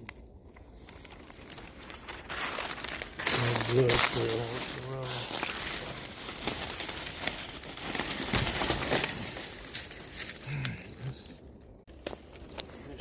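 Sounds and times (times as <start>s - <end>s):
dry leaves rustling and snapping: 0.0s - 13.0s
low vocal sound: 10.4s - 11.4s.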